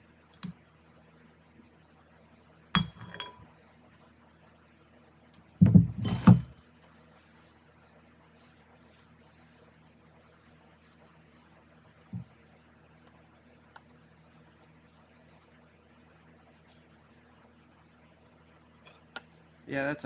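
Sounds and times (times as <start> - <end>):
metal parts clinking and knocking: 2.8 - 3.4.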